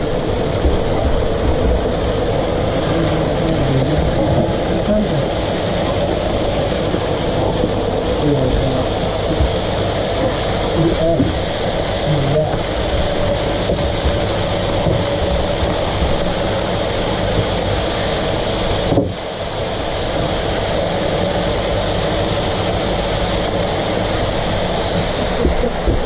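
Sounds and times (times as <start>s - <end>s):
mechanical running noise with hiss: 0.0s - 26.0s.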